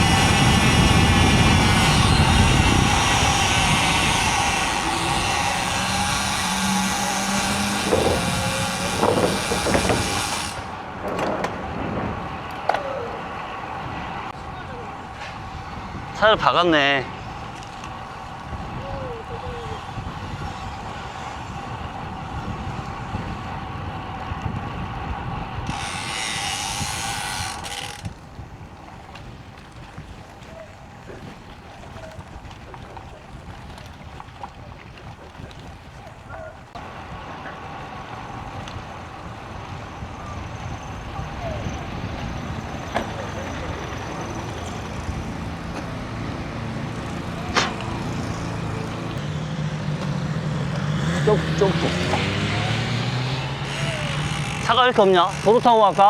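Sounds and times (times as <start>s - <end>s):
bicycle tyre road noise: 0.0s - 56.0s
wind buffeting microphone: 0.0s - 56.0s
sharp click: 47.5s - 48.0s.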